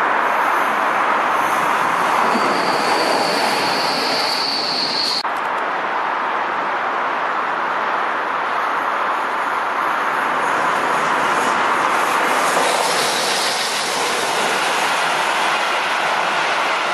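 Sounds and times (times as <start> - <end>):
train wheels rushing on rail: 0.0 - 5.2, 8.7 - 16.9.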